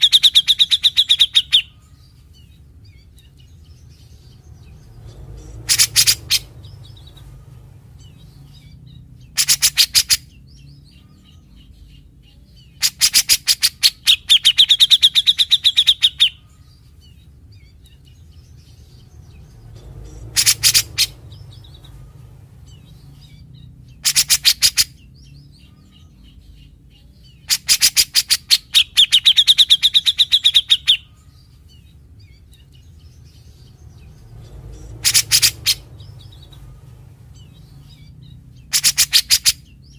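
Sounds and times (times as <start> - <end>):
bird high trill: 0.0 - 1.8, 5.4 - 7.3, 12.8 - 16.4, 19.9 - 22.0, 37.4 - 39.9
bird singing harsh rattling notes: 0.0 - 39.9.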